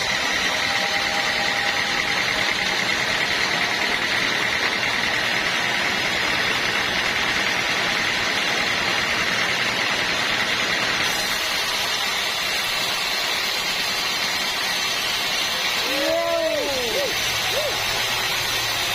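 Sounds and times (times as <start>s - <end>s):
machine noise with high whine: 0.0s - 18.9s
bright hiss: 11.0s - 18.9s.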